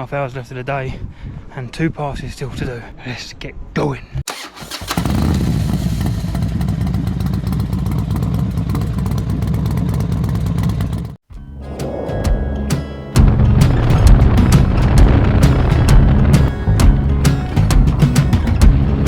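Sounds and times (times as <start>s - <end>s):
motorcycle engine rumbling: 4.4s - 19.0s.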